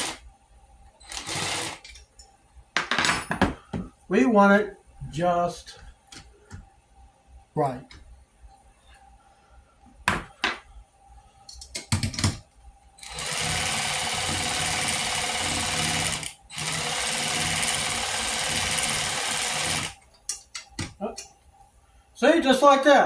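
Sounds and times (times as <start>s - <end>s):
cordless ratchet running: 13.0s - 20.0s.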